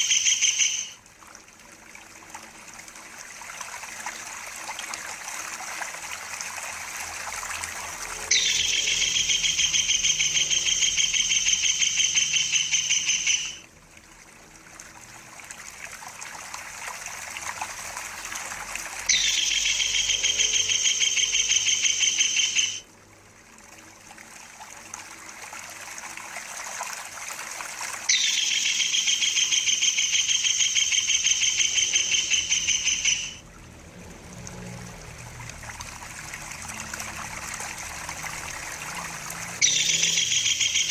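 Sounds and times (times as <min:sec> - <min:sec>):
kingfisher rapid rolling trill: 0:00.0 - 0:01.0, 0:06.8 - 0:13.6, 0:18.9 - 0:22.8, 0:28.0 - 0:33.4, 0:36.2 - 0:40.9
stream trickling: 0:00.0 - 0:40.9.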